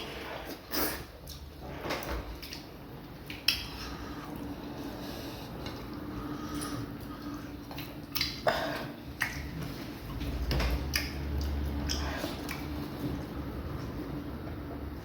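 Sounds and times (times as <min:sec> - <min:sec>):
steady low hum: 0:00.0 - 0:15.0
mouths chewing with wet smacks: 0:02.3 - 0:14.0.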